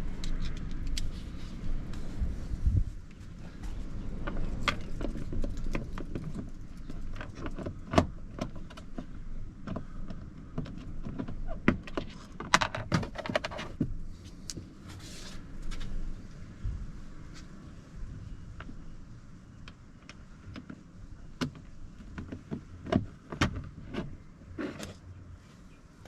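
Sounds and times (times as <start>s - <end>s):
clicks and rattles of car door trim: 21.4s - 25.0s.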